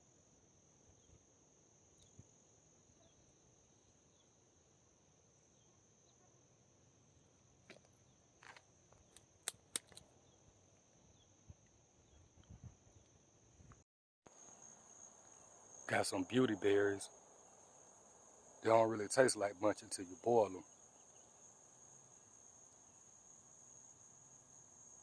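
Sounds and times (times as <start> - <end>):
faint insect drone: 0.0 - 25.0
sharp clicks or snaps: 8.5 - 10.0.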